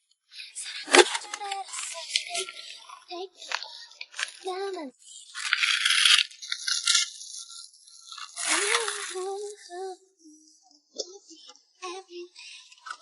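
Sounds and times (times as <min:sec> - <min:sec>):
plastic packaging rustling: 0:00.6 - 0:04.5, 0:05.3 - 0:09.4.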